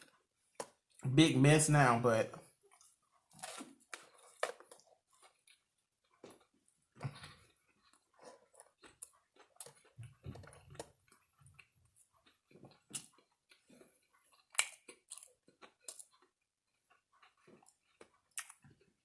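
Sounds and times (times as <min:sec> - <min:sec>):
person chewing food: 0:00.0 - 0:01.1, 0:02.4 - 0:19.0.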